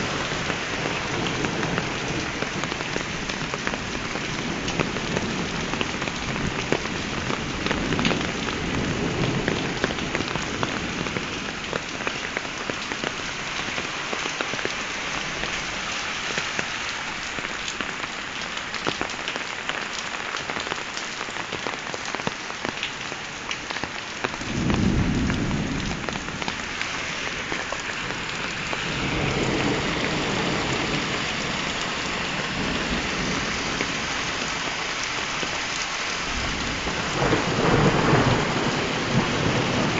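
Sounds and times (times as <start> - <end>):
heavy rain on hard surface: 0.0 - 39.9
thunder rumbling: 24.3 - 39.9.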